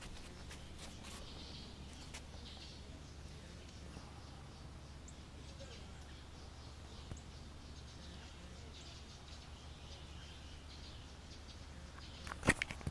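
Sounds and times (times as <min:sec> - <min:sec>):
faint bird chirps: 0:00.0 - 0:12.5
low steady hum: 0:00.0 - 0:12.9.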